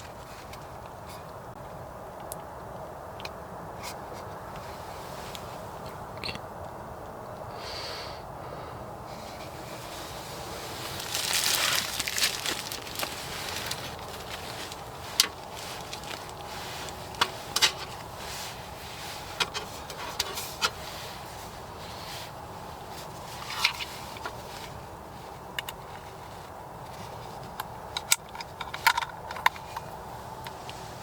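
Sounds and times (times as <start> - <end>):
hands rustling gear: 9.4 - 18.6.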